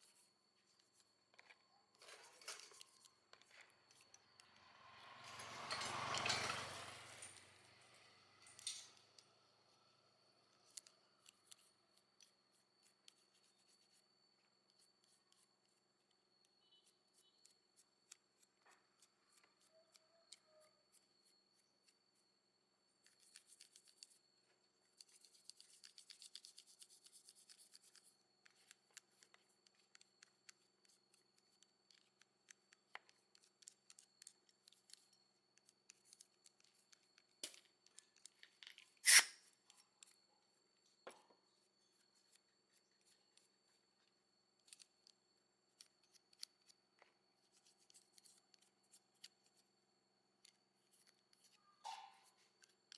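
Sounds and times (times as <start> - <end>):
short scrape: 4.7 - 7.6, 39.0 - 39.5.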